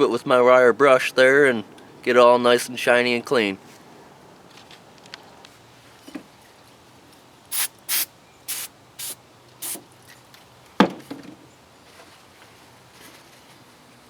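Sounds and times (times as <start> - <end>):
aerosol spray hissing: 7.5 - 9.8.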